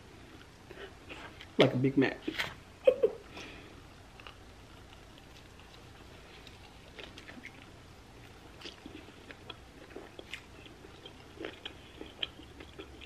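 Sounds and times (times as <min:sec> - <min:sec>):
person chewing food: 0:04.1 - 0:13.0.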